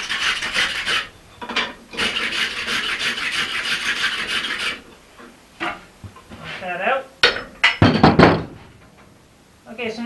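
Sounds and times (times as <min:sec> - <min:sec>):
scraping strokes on steel: 0:00.0 - 0:05.0.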